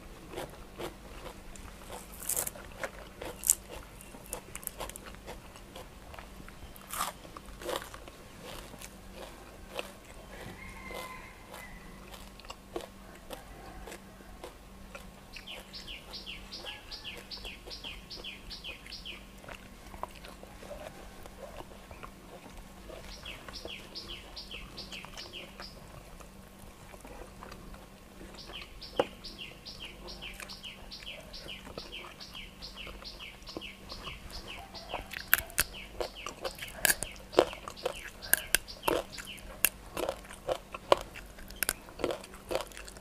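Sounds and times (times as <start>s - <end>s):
soft eating clicks: 0.3s - 43.0s
bird chirping rapidly: 15.3s - 19.3s, 23.1s - 25.8s, 28.4s - 39.6s.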